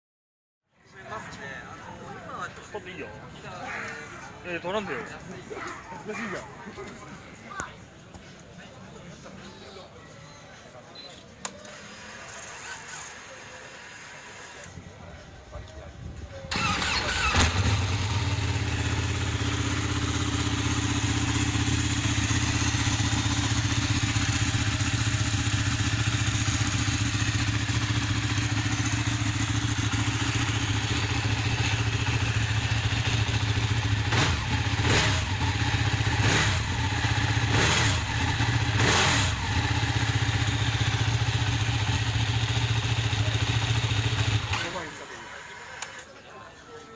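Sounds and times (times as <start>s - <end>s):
motorcycle starter cranking: 16.5s - 19.3s
motorcycle engine idling: 16.5s - 45.6s
motorcycle engine revving: 16.5s - 45.8s.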